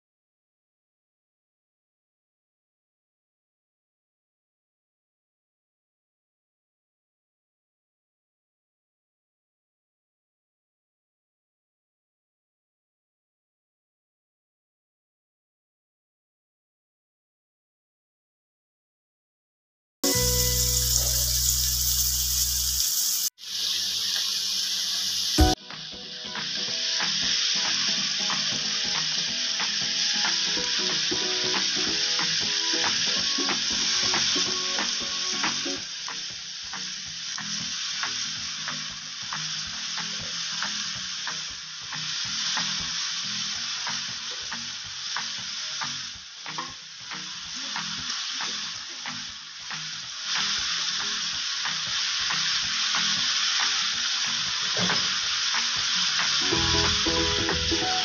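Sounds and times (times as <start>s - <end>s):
food sizzling in a pan: 20.0s - 58.0s.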